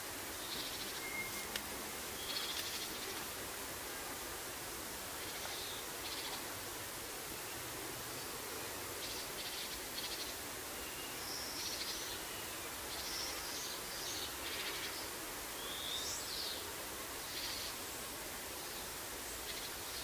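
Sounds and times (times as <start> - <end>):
steady hiss: 0.0 - 20.0
bird chirps and whistles: 1.0 - 1.5.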